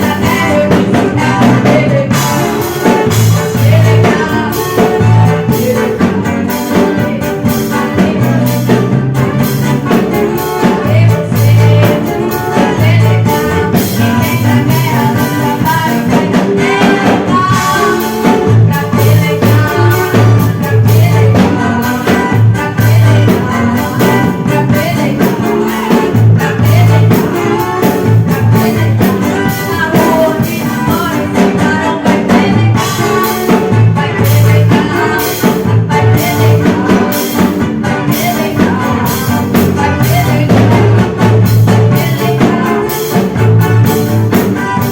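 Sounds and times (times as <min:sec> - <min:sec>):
band playing: 0:00.0 - 0:44.9
drum kit: 0:00.0 - 0:44.9
repeating bass line: 0:00.0 - 0:44.9.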